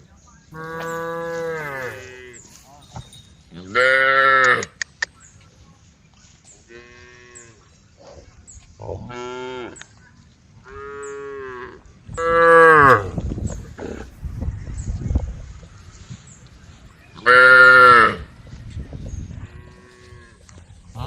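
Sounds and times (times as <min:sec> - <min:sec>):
cows mooing: 0:00.6 - 0:02.4.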